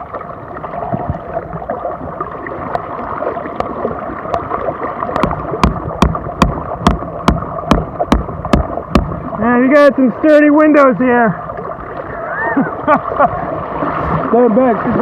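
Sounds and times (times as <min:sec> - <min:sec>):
rushing floodwater: 0:00.0 - 0:15.0.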